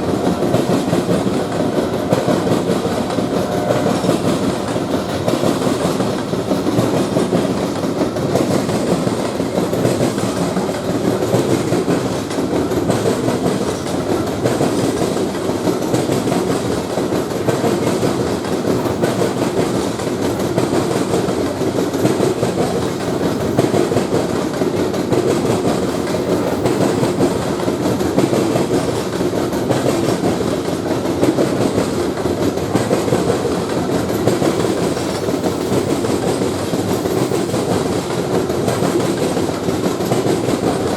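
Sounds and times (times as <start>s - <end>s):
train cars rumbling past: 0.0s - 40.9s
train wheel clatter: 0.0s - 40.9s.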